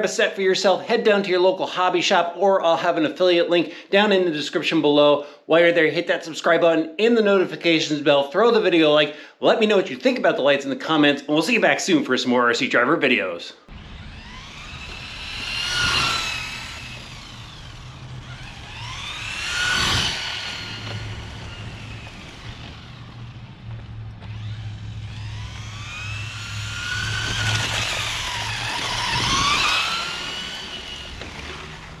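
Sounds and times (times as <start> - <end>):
toy car electric motor whining: 13.7 - 32.0.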